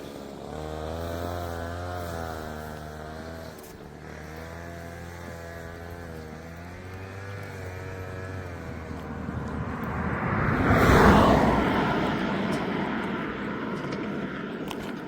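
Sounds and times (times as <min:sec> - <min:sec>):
vehicle passing by: 0:00.0 - 0:15.0.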